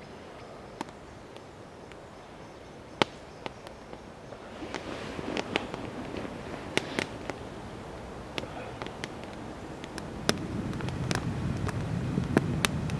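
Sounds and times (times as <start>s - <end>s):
campfire crackling: 0.1s - 12.9s
fire popping: 3.0s - 12.9s
fire hissing: 4.4s - 12.9s.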